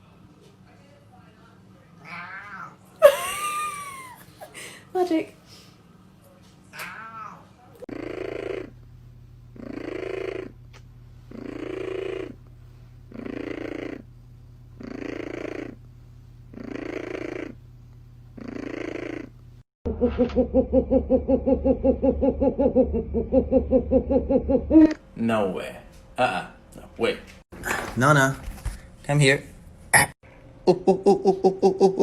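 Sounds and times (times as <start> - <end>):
rapid pulsing cat vocalisation: 7.9 - 8.7, 9.6 - 10.6, 11.3 - 12.4, 13.1 - 14.0, 14.8 - 15.8, 16.5 - 17.6, 18.4 - 19.3
cat purring: 7.9 - 8.8, 9.5 - 14.1, 14.7 - 15.9, 16.5 - 17.6, 18.4 - 19.4.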